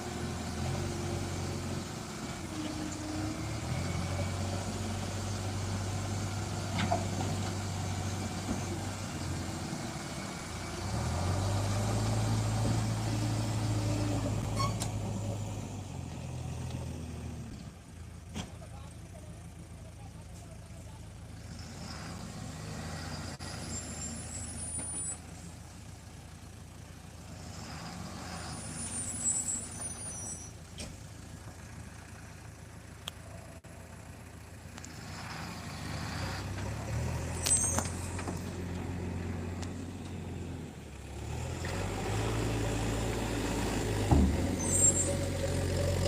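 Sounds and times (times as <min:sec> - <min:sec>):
truck diesel engine running: 0:00.0 - 0:21.6, 0:23.6 - 0:29.2, 0:29.8 - 0:46.0
short high-pitched squeals: 0:14.4 - 0:14.9, 0:22.8 - 0:25.3, 0:27.6 - 0:30.6, 0:37.3 - 0:38.2, 0:44.5 - 0:45.6.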